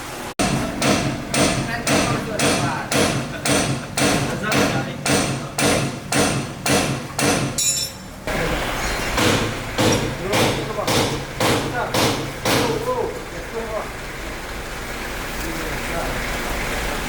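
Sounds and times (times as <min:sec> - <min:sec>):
steady hammering: 0:00.4 - 0:08.4, 0:09.1 - 0:13.1.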